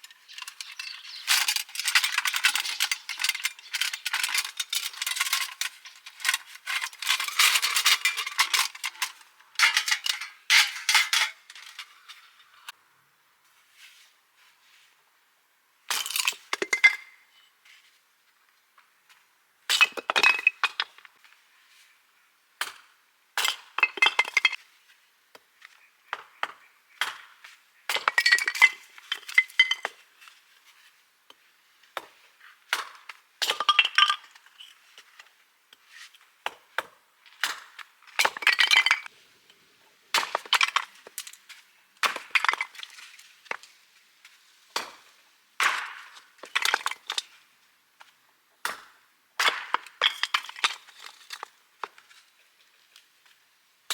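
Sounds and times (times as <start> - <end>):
hard objects clinking together: 0.0 - 12.1.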